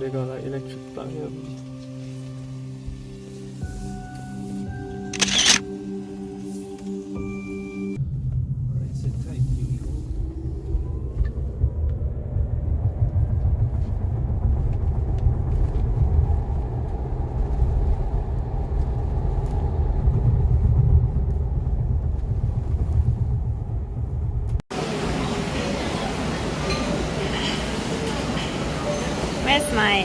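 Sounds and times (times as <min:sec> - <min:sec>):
loud low rumble: 0:08.0 - 0:26.8.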